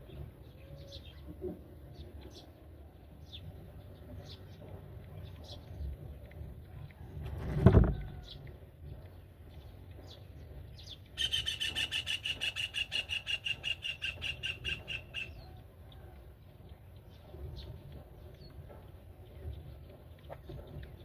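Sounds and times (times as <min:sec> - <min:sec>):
bird of prey calling: 0:11.2 - 0:15.6.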